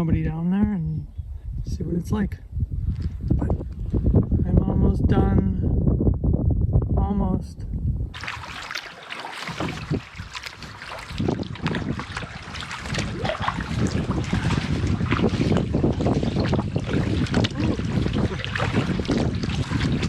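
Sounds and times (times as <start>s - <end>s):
wind buffeting microphone: 0.0s - 20.0s
canoe paddle splashing water: 8.2s - 20.0s.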